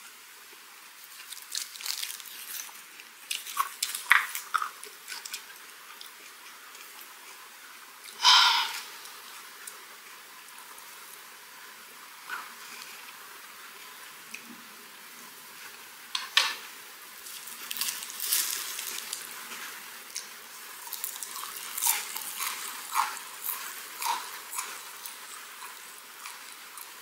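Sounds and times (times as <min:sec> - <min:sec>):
wet crackling chewing: 0:01.0 - 0:07.4, 0:17.2 - 0:27.0.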